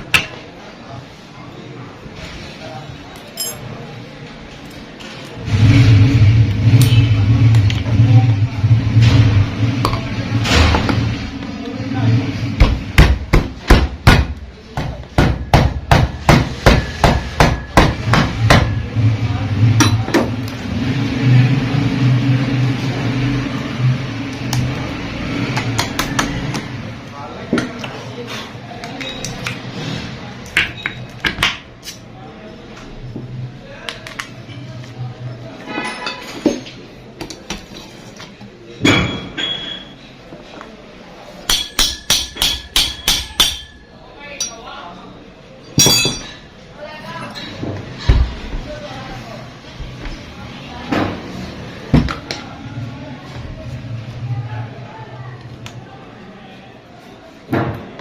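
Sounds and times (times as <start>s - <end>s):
hammer clanking on metal: 41.5s - 43.8s, 45.8s - 46.5s.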